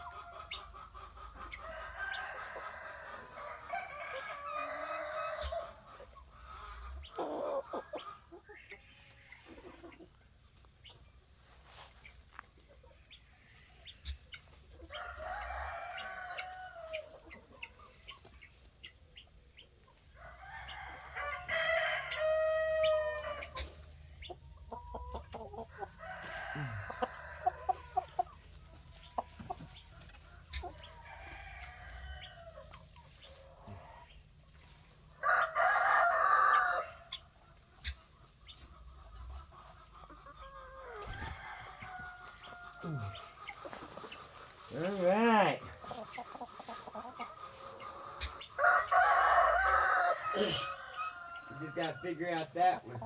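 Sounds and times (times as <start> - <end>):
roosters crowing: 0.0 - 8.0, 14.8 - 17.5, 20.1 - 34.3, 35.0 - 38.0, 40.2 - 53.0
chickens clucking: 0.0 - 53.0.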